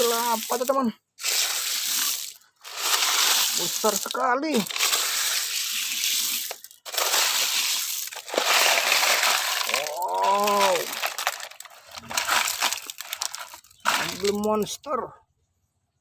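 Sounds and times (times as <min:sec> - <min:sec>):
sand being dug: 0:00.0 - 0:14.4
person saying wow: 0:09.6 - 0:11.0.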